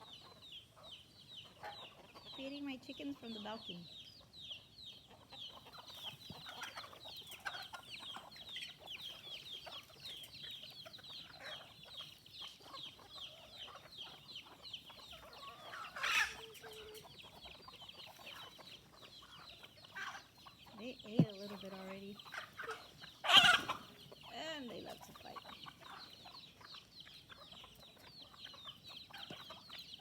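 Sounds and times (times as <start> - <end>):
chickens clucking: 0.0 - 30.0
chicks peeping: 0.0 - 30.0
chicken squawk: 4.1 - 30.0.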